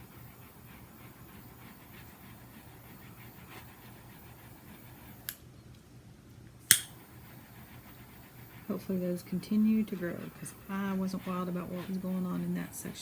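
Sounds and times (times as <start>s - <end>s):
faint rhythmic panting: 0.0s - 5.3s, 6.9s - 13.0s
steady low hum: 0.0s - 13.0s
clicks: 6.7s - 7.0s.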